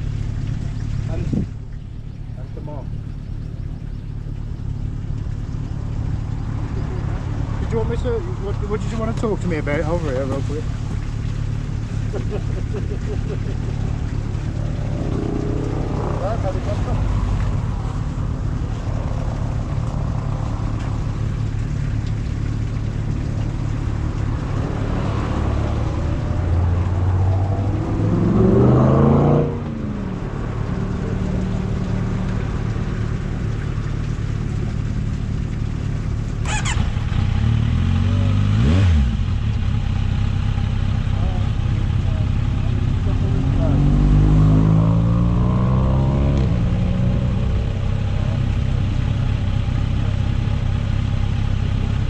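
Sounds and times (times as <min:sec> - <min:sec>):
constant hum: 0:00.0 - 0:28.1, 0:29.6 - 0:52.0
vehicle engine running: 0:00.0 - 0:52.0.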